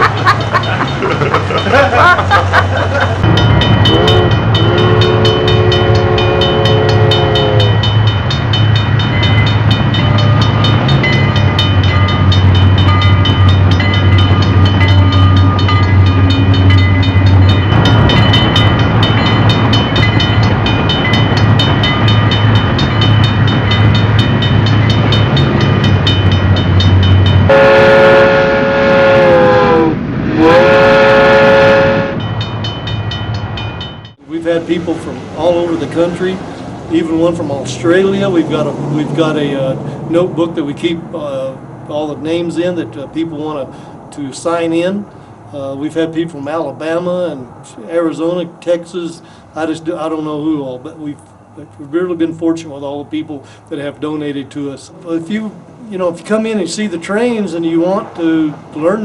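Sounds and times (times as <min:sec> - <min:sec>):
model train hum: 0:00.0 - 0:40.1
locomotive horn: 0:03.7 - 0:07.9, 0:27.5 - 0:32.2.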